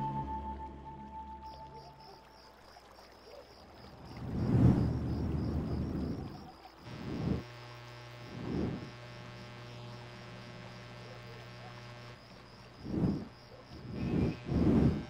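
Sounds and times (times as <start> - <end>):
street lamp electric buzz: 5.7 - 15.0.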